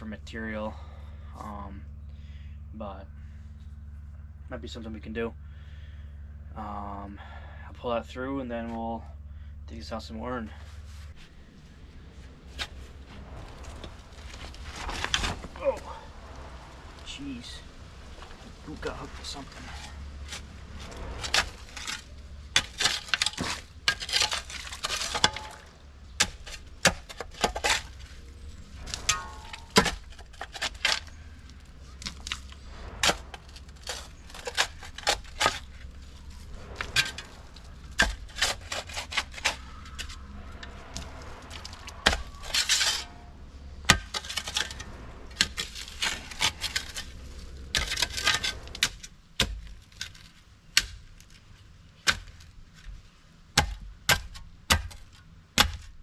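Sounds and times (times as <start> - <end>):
shovel scraping through gravel: 12.5 - 16.1, 17.0 - 43.2, 43.8 - 50.4.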